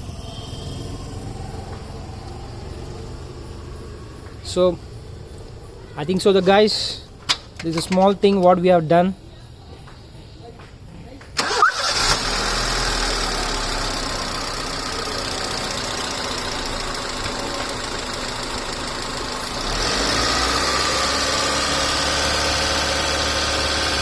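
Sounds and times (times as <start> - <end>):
car engine idling and revving: 0.0 - 5.9, 11.4 - 24.0.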